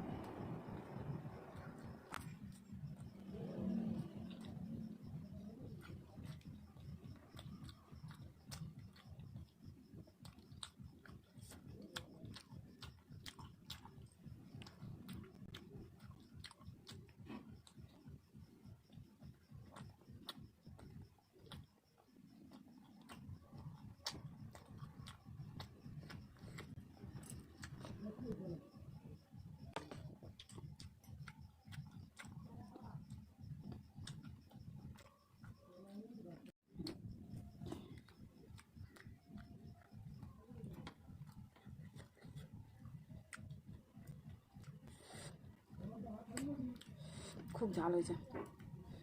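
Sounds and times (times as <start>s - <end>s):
person chewing food: 0.0s - 49.0s
mouth clicks and lip smacks: 1.8s - 28.7s, 29.7s - 49.0s
lip smacks: 22.4s - 28.5s.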